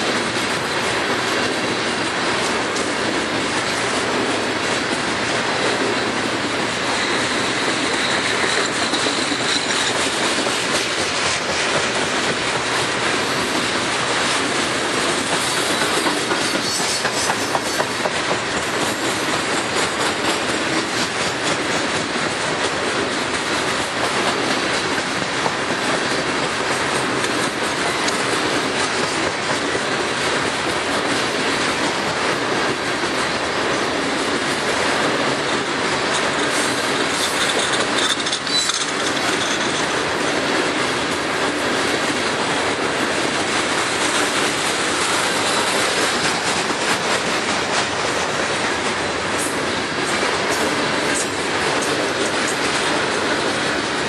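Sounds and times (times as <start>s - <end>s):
rumble and rattle of steel wheels: 0.0s - 54.0s
high wheel squeal: 6.9s - 10.2s, 15.4s - 17.9s, 37.1s - 39.8s.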